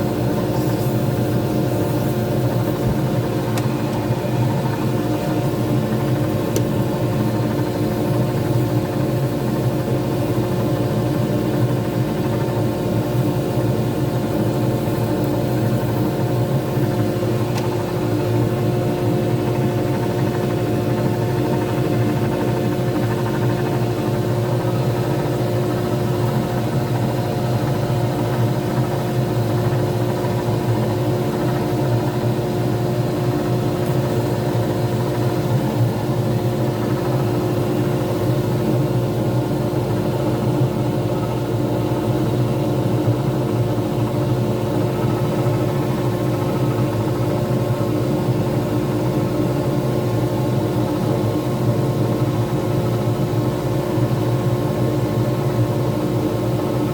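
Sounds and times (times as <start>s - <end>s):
lathe motor humming: 0.0s - 8.5s.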